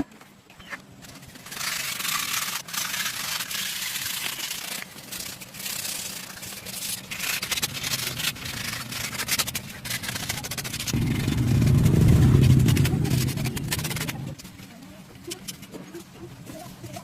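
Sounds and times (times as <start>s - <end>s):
abrasive sanding strokes: 1.2s - 14.5s.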